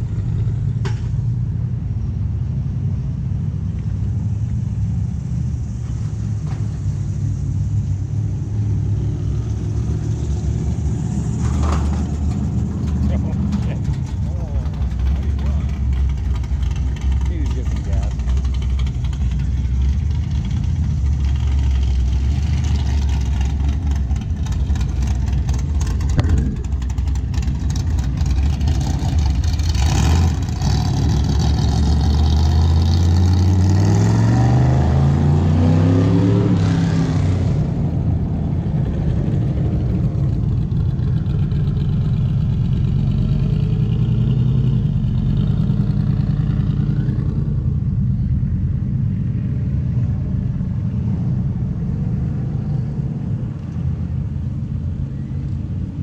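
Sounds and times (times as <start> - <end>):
car engines rumbling: 0.0 - 56.0
car engine accelerating: 3.2 - 56.0.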